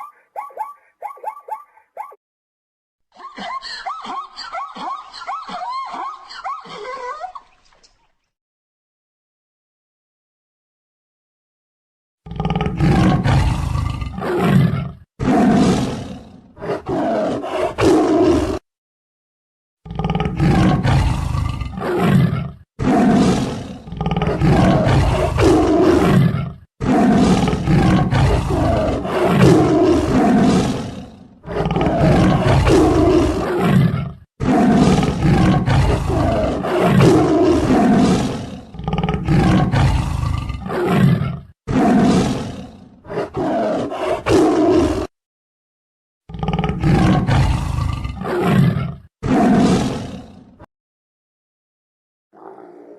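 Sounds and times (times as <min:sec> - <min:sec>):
large animal roaring and growling: 0:12.2 - 0:18.6, 0:19.8 - 0:45.1, 0:46.3 - 0:50.7, 0:52.4 - 0:52.9.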